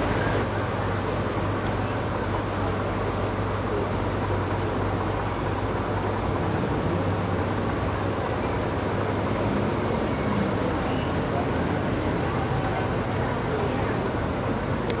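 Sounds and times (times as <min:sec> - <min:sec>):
car engine droning: 0:00.0 - 0:15.0
street noise: 0:00.0 - 0:15.0.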